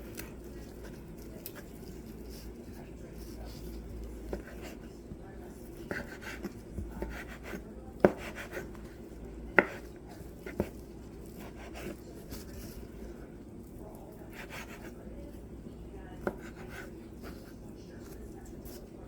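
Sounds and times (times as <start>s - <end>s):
soft rubbing and handling: 0.0s - 19.0s.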